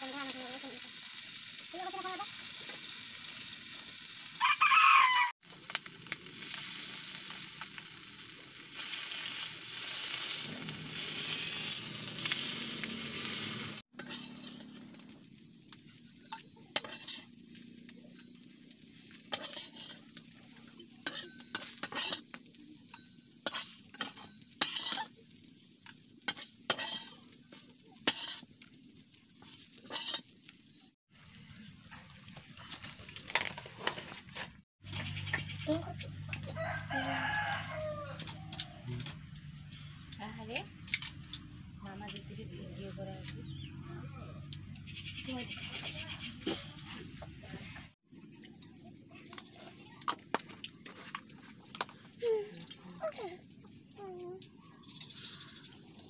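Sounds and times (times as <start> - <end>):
small fish sizzling in oil: 0.0 - 31.0, 49.0 - 56.0
metal spatula scraping pan: 9.2 - 15.2, 15.8 - 25.4, 26.2 - 28.7, 29.4 - 30.5.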